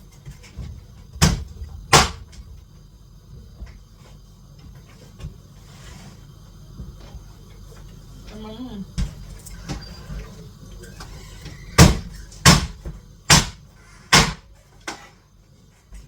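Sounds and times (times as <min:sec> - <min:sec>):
knife chopping on cutting board: 0:11.8 - 0:14.4.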